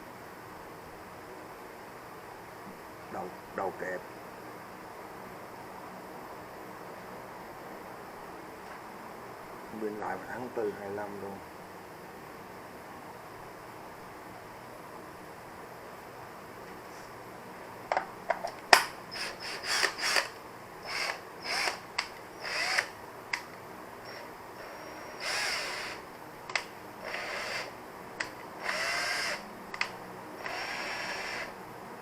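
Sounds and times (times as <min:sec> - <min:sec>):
cordless drill spinning up: 0:19.1 - 0:23.0, 0:24.1 - 0:26.0, 0:27.0 - 0:27.8, 0:28.6 - 0:29.4, 0:30.4 - 0:31.5
sharp clicks: 0:29.7 - 0:30.6.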